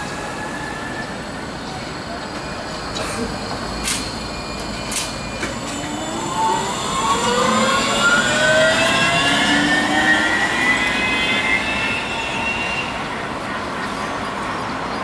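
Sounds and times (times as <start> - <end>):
electric motor whining: 5.5 - 11.9.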